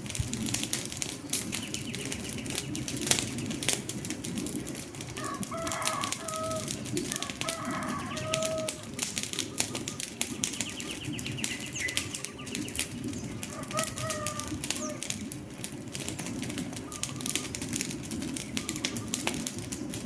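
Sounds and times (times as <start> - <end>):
wood fire crackling and popping: 0.0 - 20.0
bird calling: 5.2 - 15.2, 16.6 - 17.8, 18.4 - 19.4.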